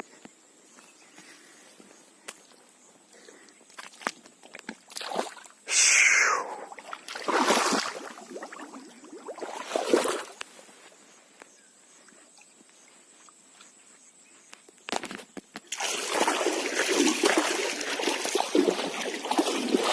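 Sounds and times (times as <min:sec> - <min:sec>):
water splashing and sloshing: 0:03.2 - 0:05.6, 0:06.7 - 0:10.8, 0:15.0 - 0:19.9.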